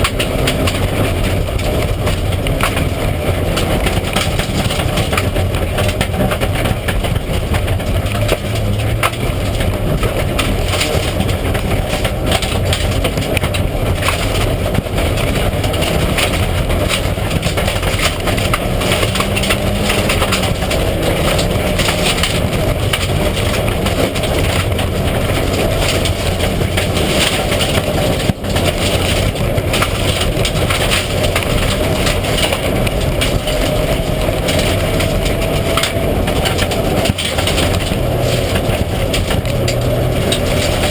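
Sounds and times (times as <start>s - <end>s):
rally car engine running hard: 0.0s - 40.9s
road noise: 0.0s - 40.9s
small knocks and rattles: 0.0s - 40.9s.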